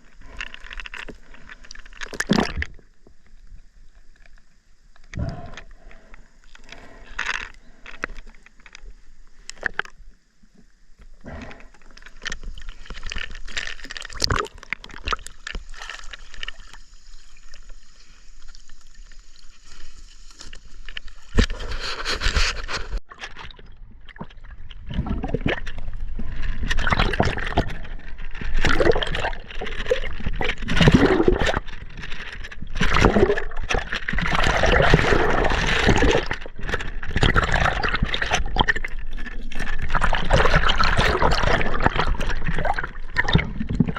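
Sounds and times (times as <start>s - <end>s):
knocks and scrapes: 19.7s - 23.0s
river water gurgling and splashing: 22.8s - 43.9s.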